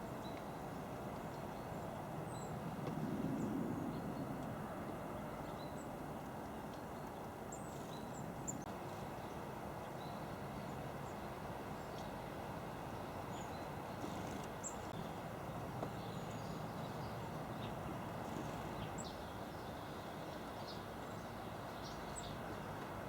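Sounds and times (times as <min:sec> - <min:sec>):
small birds chirping: 0:13.3 - 0:15.2, 0:15.8 - 0:22.8.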